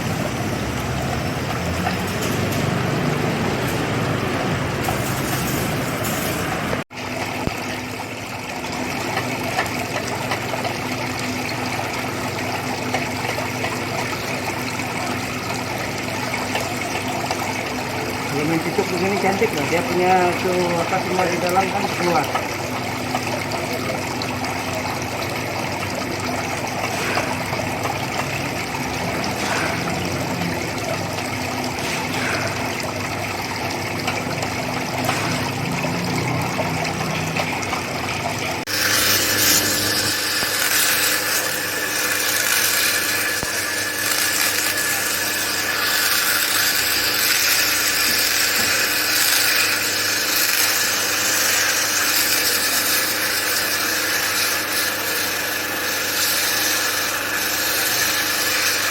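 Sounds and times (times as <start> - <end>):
power tool running: 0.0 - 7.5, 34.0 - 58.9.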